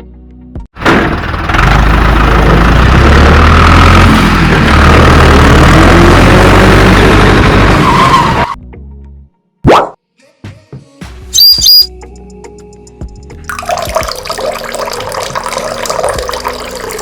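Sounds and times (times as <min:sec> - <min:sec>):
engine running loudly: 0:00.8 - 0:08.5.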